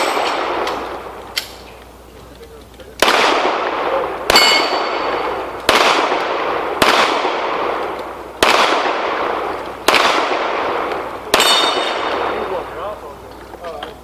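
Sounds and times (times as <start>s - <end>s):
steel plate ringing: 0.0s - 0.5s, 4.3s - 5.3s, 11.4s - 12.2s
pistol shots with echo: 0.0s - 1.7s, 3.0s - 12.8s.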